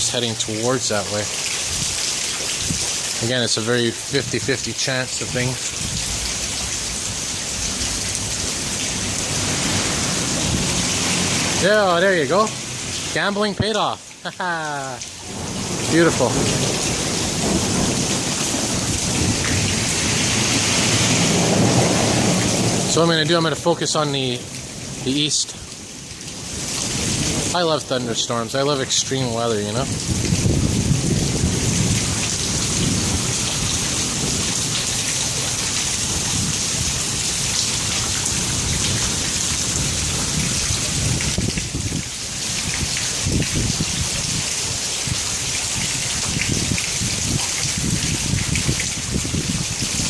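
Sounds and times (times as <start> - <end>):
heavy rain pouring: 0.0 - 50.0
thunder rumbling: 15.2 - 23.0, 29.8 - 35.0.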